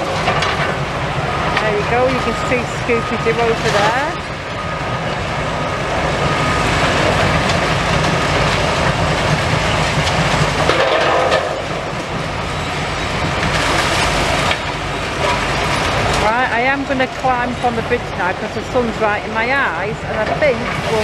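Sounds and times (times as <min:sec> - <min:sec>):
machinery clattering: 0:00.0 - 0:05.1, 0:06.0 - 0:21.0
diesel excavators rumbling: 0:00.0 - 0:21.0.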